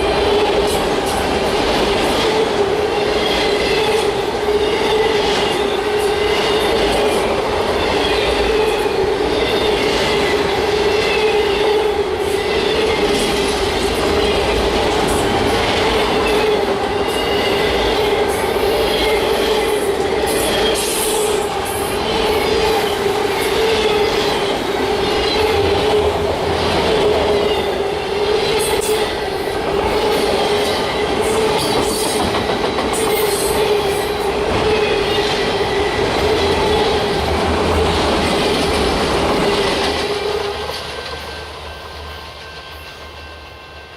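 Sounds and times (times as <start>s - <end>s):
train wheels on rails: 0.0s - 43.9s.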